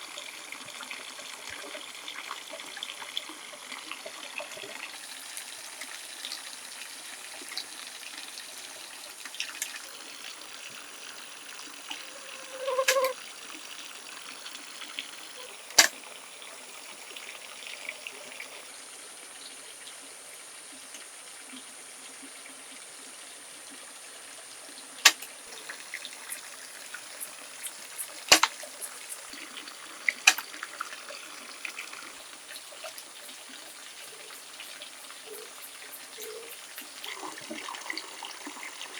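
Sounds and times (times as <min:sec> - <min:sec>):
water trickling: 0:00.0 - 0:38.9.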